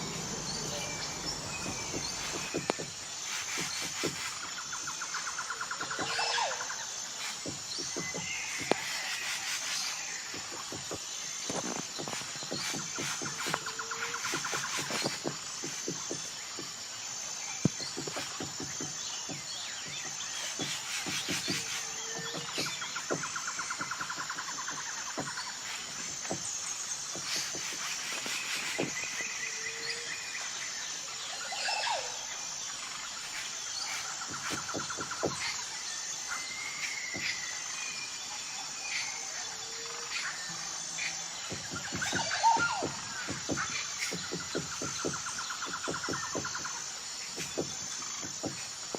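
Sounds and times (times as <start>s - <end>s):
woodpecker tapping: 0.0s - 4.6s, 7.2s - 16.9s, 17.6s - 29.4s, 33.3s - 35.7s, 41.0s - 48.9s
rapid pulsed bird trill: 0.0s - 16.6s
bird calls: 0.0s - 30.6s, 31.2s - 48.9s
high insect trill: 0.0s - 48.9s.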